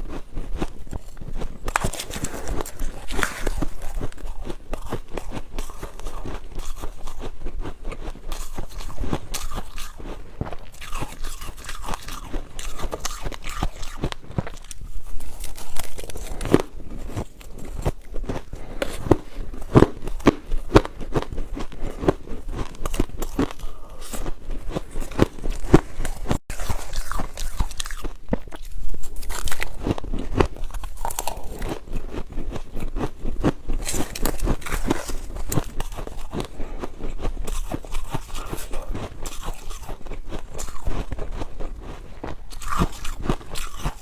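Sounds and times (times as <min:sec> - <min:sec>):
person crunching ice cubes: 0:00.0 - 0:44.0.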